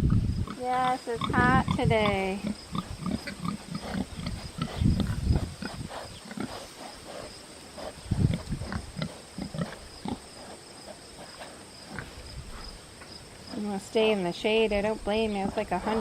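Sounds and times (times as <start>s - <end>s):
pigs grunting: 0.0s - 12.7s.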